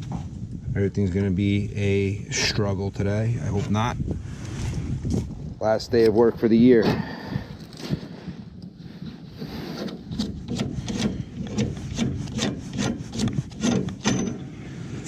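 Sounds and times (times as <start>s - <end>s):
wrench scraping on metal pipe: 9.4s - 14.5s.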